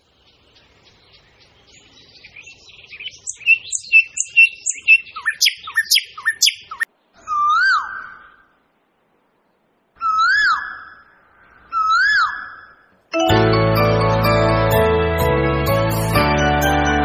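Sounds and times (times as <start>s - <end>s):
small birds chirping: 0.0s - 8.6s, 9.3s - 13.1s.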